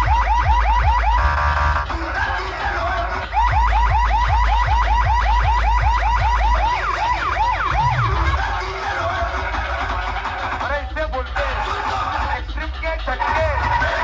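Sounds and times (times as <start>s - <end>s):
siren-like alarm effect: 0.0s - 10.4s
heavy deep bass: 0.0s - 14.0s.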